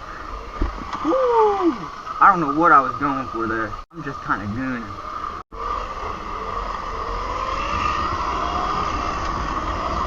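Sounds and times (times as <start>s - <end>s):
electric motor whine: 5.0s - 10.0s.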